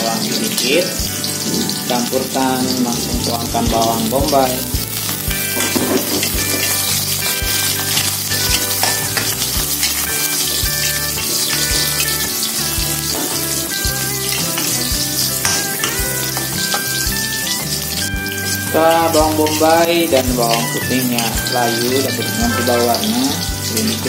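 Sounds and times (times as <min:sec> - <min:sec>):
onion and garlic sizzling in oil: 0:00.0 - 0:24.0
soft music: 0:00.0 - 0:24.0
metal spatula scraping a wok: 0:05.0 - 0:18.6.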